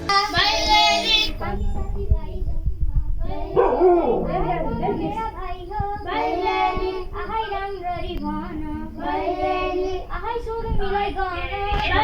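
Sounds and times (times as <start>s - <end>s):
children singing: 0.0s - 12.0s.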